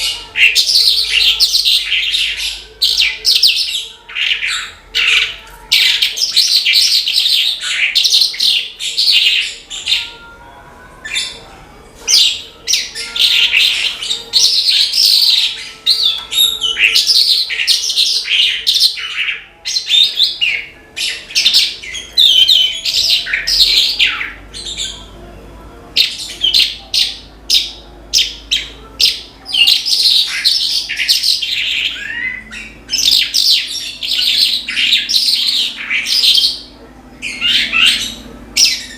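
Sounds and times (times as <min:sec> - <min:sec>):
lark singing: 0:00.0 - 0:11.4, 0:12.1 - 0:25.2, 0:25.9 - 0:38.9.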